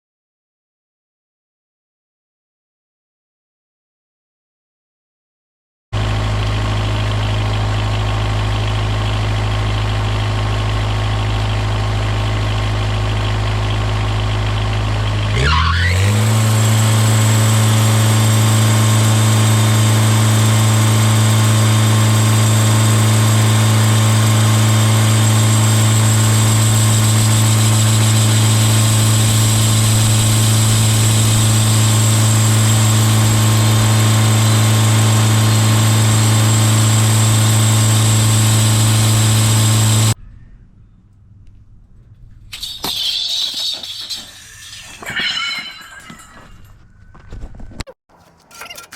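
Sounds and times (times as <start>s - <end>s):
sawmill engine running: 6.0s - 40.2s.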